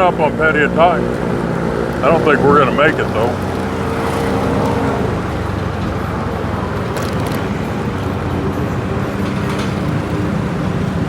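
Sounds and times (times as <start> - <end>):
motorbike engine rumble: 0.0 - 11.0
road noise: 0.0 - 11.0
street traffic: 0.0 - 11.0.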